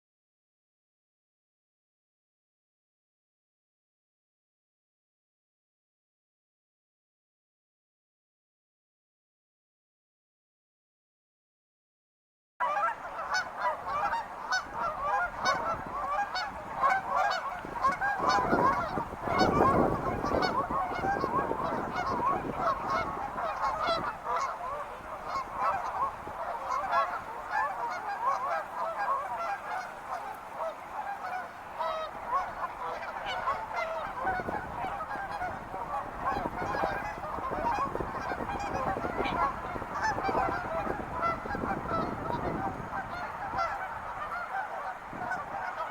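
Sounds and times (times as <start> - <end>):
flock of birds calling: 12.6 - 45.9.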